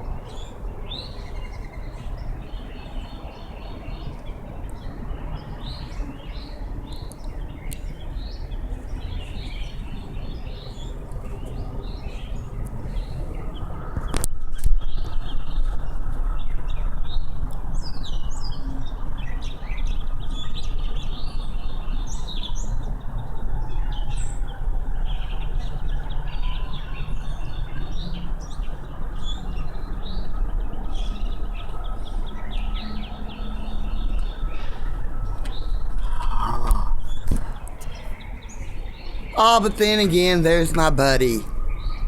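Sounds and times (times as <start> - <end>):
small birds chirping: 0.0 - 14.2, 23.9 - 42.0.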